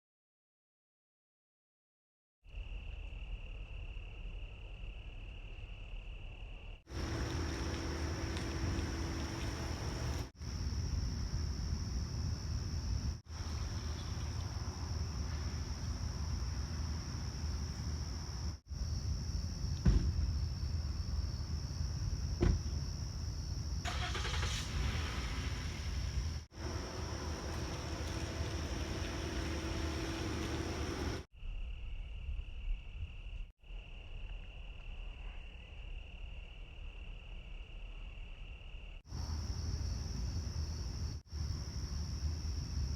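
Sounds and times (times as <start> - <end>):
crickets trilling: 2.5 - 42.9
hiss: 6.9 - 10.4, 23.9 - 31.3
thunder rumble: 6.9 - 18.6, 24.4 - 33.2.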